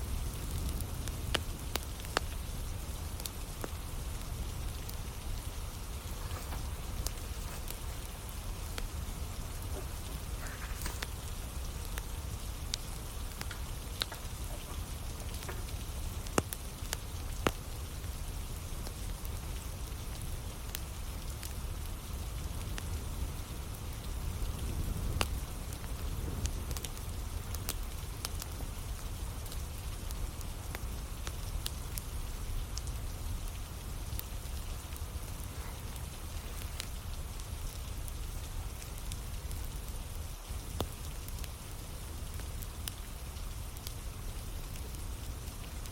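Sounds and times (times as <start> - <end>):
steady rain falling: 0.0 - 45.9
wood fire crackling and popping: 0.0 - 45.9.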